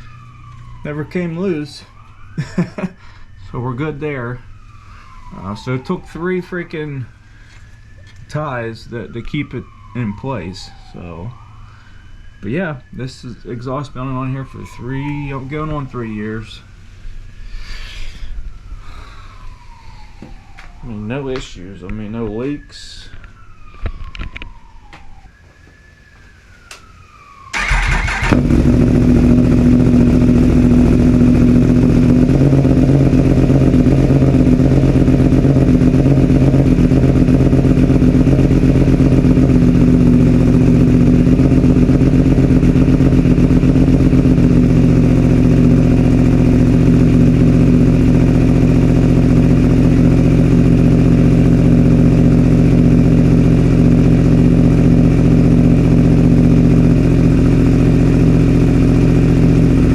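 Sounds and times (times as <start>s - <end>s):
motorcycle engine starting and idling: 27.5s - 59.9s.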